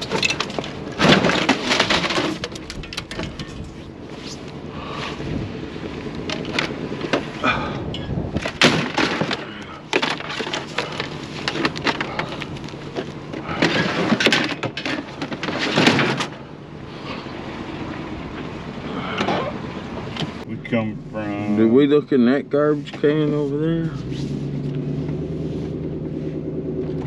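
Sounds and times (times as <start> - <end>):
debris clattering and crunching: 0.0 - 4.6, 6.0 - 16.6
loud crashes: 8.0 - 12.2.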